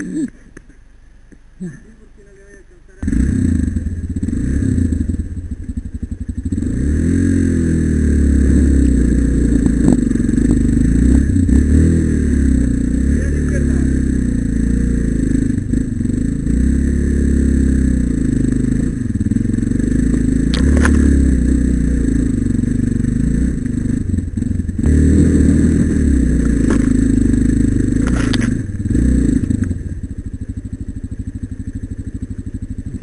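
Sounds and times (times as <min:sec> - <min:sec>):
motorcycle engine revving: 0:01.6 - 0:33.0
sharp knocks or scrapes: 0:28.0 - 0:28.6.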